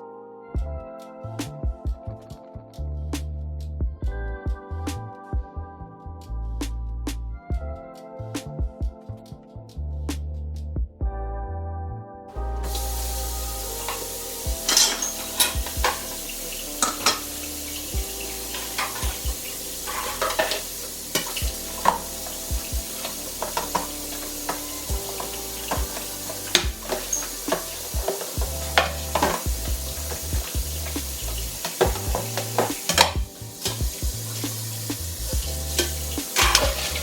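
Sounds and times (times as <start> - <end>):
background music with bass: 0.0 - 37.0
constant hiss: 12.4 - 37.0
dishes and utensils clinking: 13.8 - 37.0.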